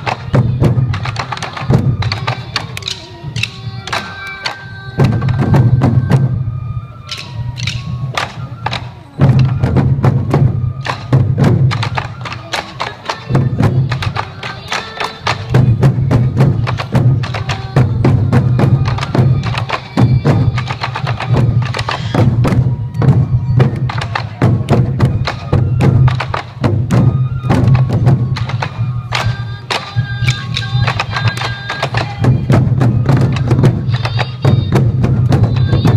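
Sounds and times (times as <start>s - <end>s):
bamboo flute: 0.0s - 35.9s
taiko drums beating: 0.0s - 35.9s
sticks clicking on drum rims: 2.7s - 4.0s, 7.1s - 8.8s.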